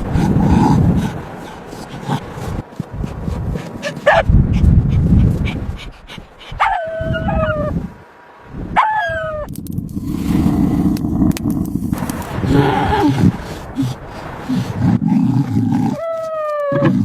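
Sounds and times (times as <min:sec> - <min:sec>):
animal whimpering: 0:03.6 - 0:07.7, 0:12.3 - 0:17.0
low rumbling noise: 0:07.0 - 0:16.0.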